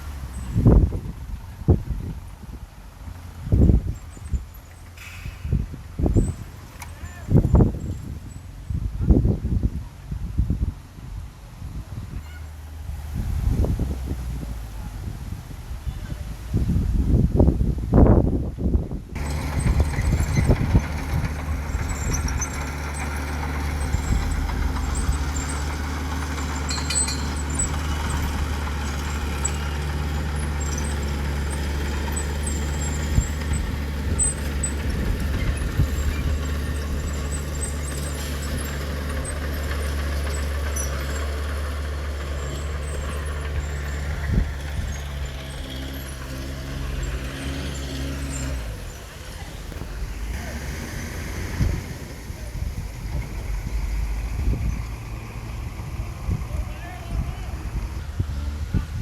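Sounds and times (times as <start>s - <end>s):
heavy diesel engine running: 19.0s - 59.0s.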